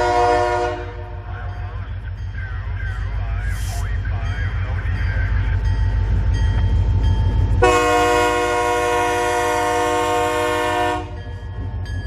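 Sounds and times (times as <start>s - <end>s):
locomotive air horn chord: 0.0s - 1.2s, 7.6s - 11.2s
low rumble of locomotives: 0.0s - 12.0s.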